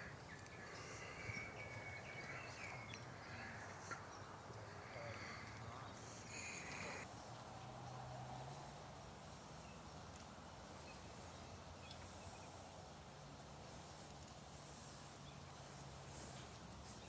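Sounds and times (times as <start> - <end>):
faint steady hiss: 0.0 - 7.5.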